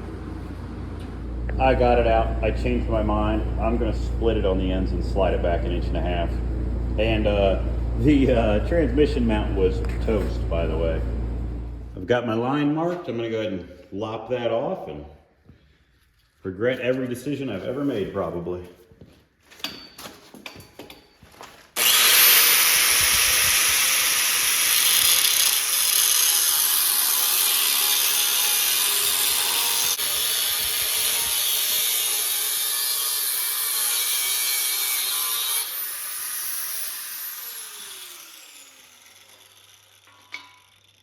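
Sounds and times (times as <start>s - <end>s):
angle grinder cutting metal: 21.8s - 41.0s.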